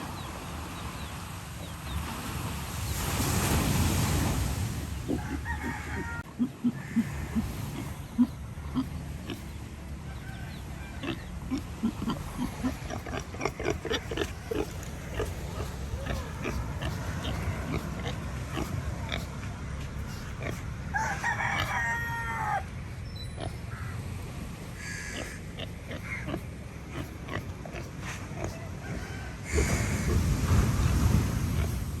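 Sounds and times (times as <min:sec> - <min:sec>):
pigs grunting: 0:05.0 - 0:09.7, 0:10.7 - 0:22.6, 0:23.3 - 0:23.7, 0:24.3 - 0:32.0
rooster crowing: 0:05.2 - 0:06.3, 0:20.9 - 0:22.7, 0:28.8 - 0:30.1.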